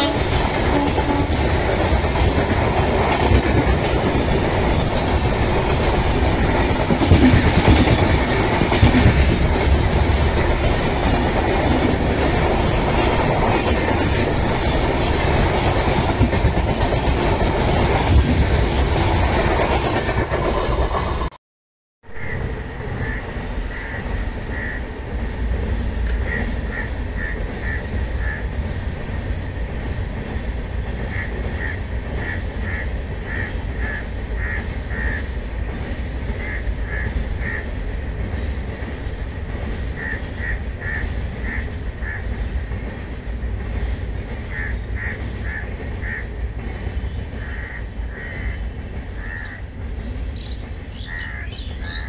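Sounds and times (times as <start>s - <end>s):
distant passing train rumble: 0.0s - 21.4s, 22.1s - 52.0s
crows cawing: 47.4s - 48.6s, 49.2s - 49.6s, 51.0s - 52.0s.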